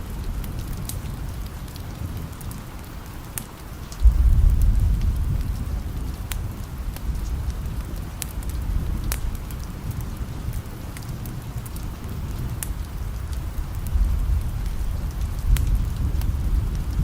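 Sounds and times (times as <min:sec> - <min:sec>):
steady rain: 0:00.0 - 0:17.0
wood fire crackling: 0:00.0 - 0:17.0
low rumble: 0:04.0 - 0:09.4.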